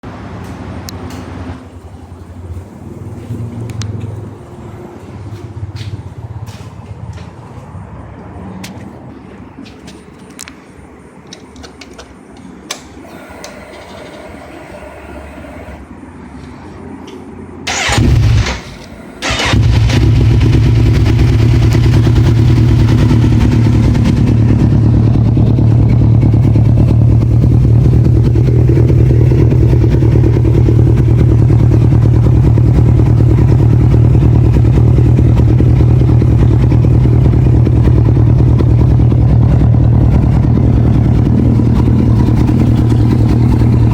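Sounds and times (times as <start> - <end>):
motorcycle engine starting and idling: 11.2 - 16.0, 17.6 - 43.9.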